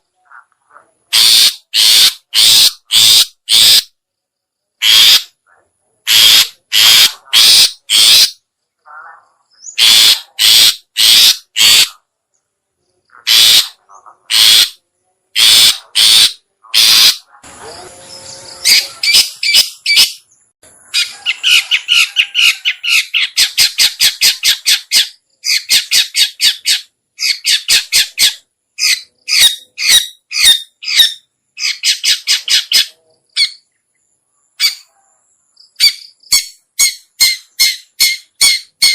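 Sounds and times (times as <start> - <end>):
shrike harsh calls: 13.2 - 14.8, 15.4 - 20.2.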